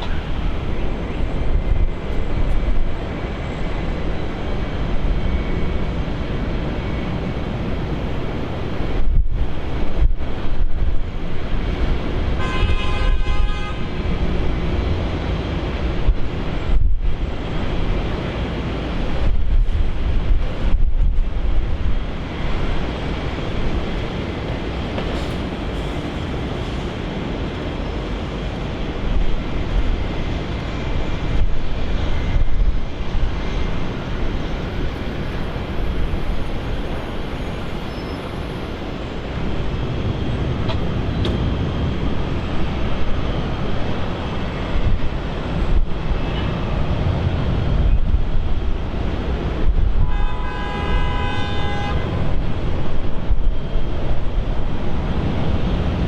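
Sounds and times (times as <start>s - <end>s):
jet engines roaring: 0.0s - 56.0s
wind buffeting the microphone: 0.0s - 56.0s.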